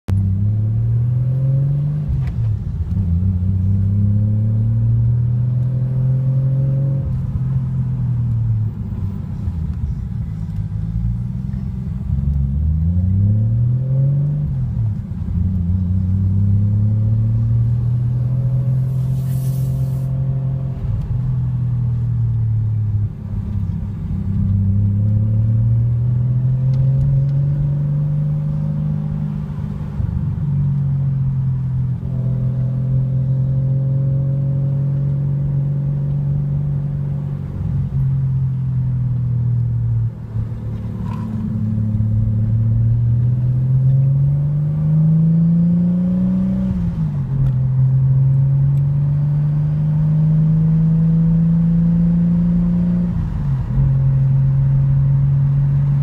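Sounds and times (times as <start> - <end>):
car engine from inside cabin: 0.1 - 56.0
brief hiss: 18.8 - 20.1.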